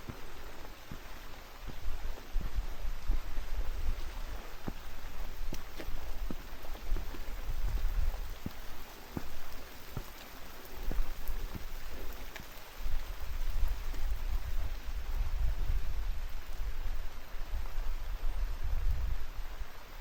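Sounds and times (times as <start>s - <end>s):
raindrops tapping: 0.0s - 2.5s, 3.1s - 16.6s
steady rain: 0.0s - 20.0s
wind rumble on microphone: 0.0s - 20.0s.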